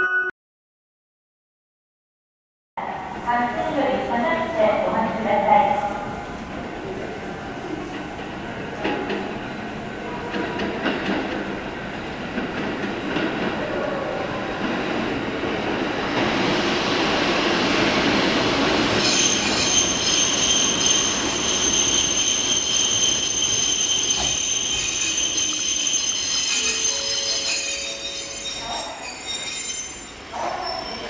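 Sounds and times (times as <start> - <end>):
train wheels rumbling on rails: 3.1 - 31.0
high-pitched wheel squeal: 18.7 - 31.0.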